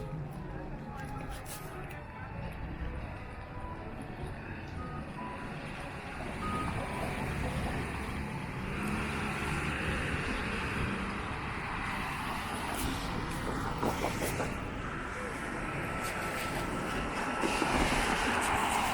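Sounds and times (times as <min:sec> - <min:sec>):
tyres hissing on wet road: 0:15.6 - 0:18.9.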